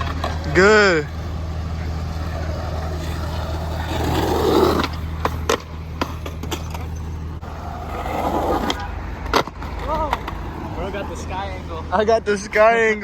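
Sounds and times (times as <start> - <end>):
skateboard clacking on ground: 0.0 - 0.6, 2.4 - 10.5
skateboard wheels rolling on pavement: 0.0 - 13.0.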